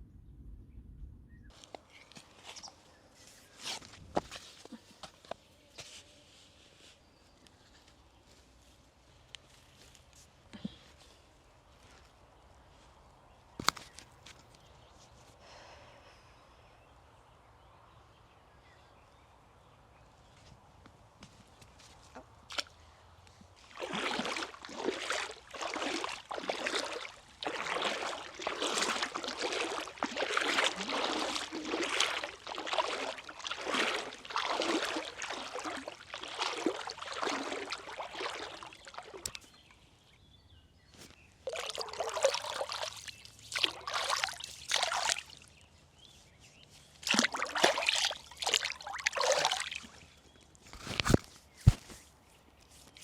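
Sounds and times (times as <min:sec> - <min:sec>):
water splashing and sloshing: 0:21.7 - 0:39.8, 0:41.0 - 0:45.7, 0:46.7 - 0:53.0.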